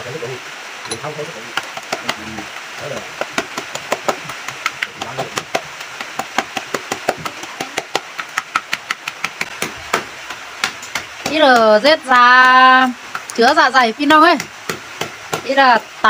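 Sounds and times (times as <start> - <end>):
pestle pounding in mortar: 0.9 - 11.8.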